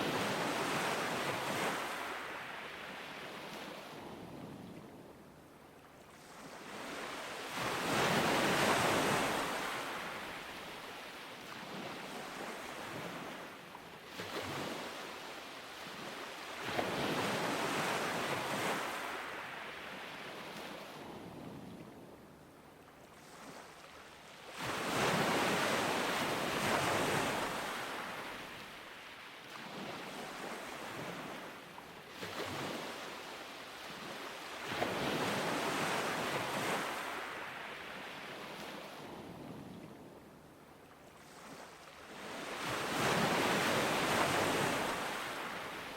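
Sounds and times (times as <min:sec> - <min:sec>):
ocean surf breaking on beach: 0:06.2 - 0:13.4, 0:24.5 - 0:39.3, 0:42.1 - 0:45.9.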